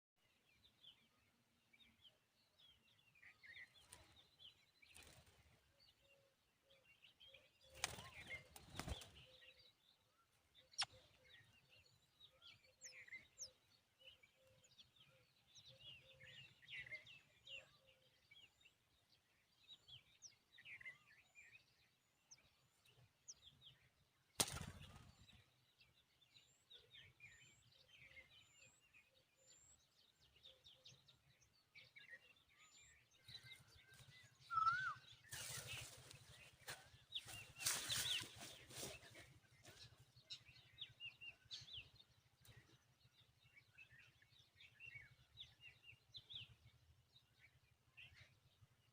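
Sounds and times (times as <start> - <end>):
faint bird chirps: 2.7 - 18.8, 26.3 - 48.7.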